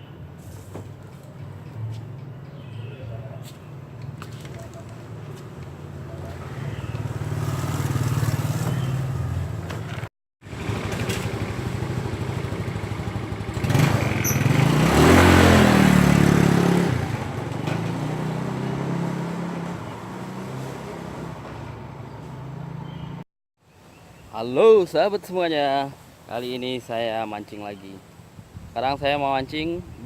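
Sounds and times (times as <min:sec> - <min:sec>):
vehicle passing by: 0:05.1 - 0:23.2
motorcycle engine running: 0:06.2 - 0:17.4.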